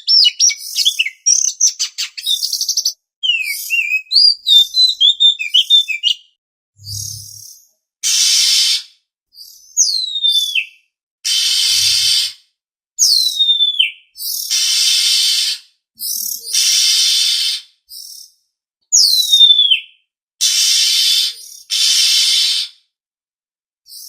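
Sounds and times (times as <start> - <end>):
bird whistles sliding downward: 6.8 - 7.4, 11.3 - 12.2, 20.4 - 22.7
bird harsh hissing rasps: 8.0 - 9.0, 11.3 - 12.4, 14.3 - 17.8, 20.4 - 22.8.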